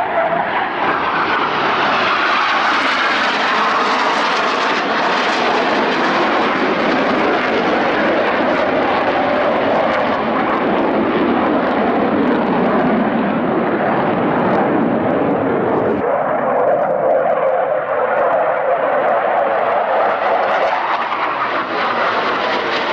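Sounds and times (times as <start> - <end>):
jet flying by: 0.0 - 22.9.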